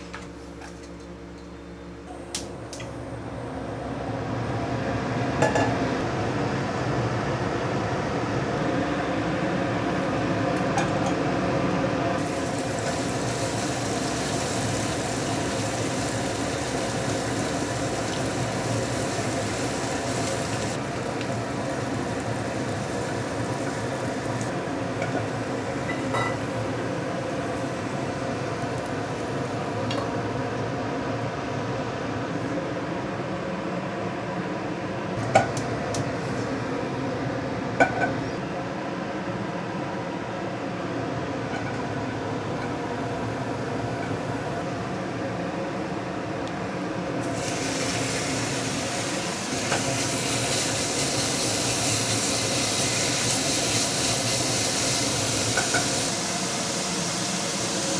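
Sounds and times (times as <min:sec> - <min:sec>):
food sizzling in a pan: 0:12.2 - 0:30.2, 0:47.2 - 0:57.9.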